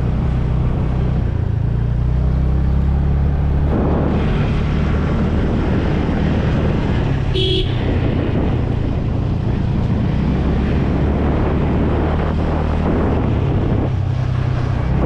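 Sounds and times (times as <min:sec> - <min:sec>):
motorcycle engine running: 0:00.0 - 0:15.0
road and wind noise: 0:00.0 - 0:15.0
horn beep: 0:07.4 - 0:07.9.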